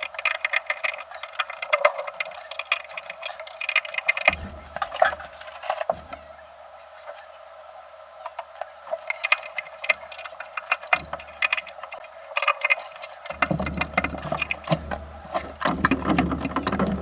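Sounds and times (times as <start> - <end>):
irregular clicking and tapping: 9.1 - 17.0.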